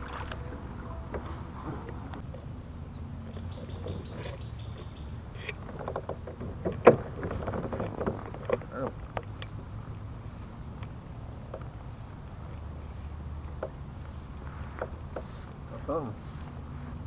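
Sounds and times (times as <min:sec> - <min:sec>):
low outdoor rumble: 0:00.0 - 0:17.0
bird singing a high trill: 0:00.4 - 0:05.2.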